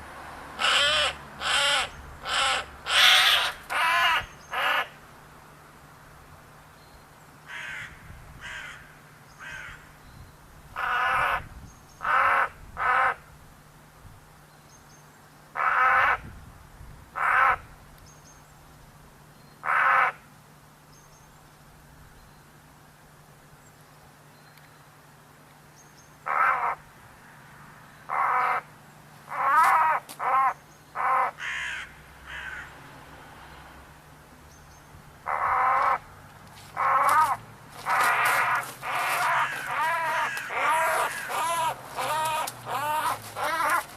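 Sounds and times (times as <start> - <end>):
crow cawing: 0.6 - 5.0, 7.5 - 9.9, 12.0 - 13.2, 17.2 - 17.6, 19.6 - 20.2, 26.3 - 26.8, 28.1 - 28.7, 29.3 - 32.7, 35.3 - 36.0, 36.8 - 43.9.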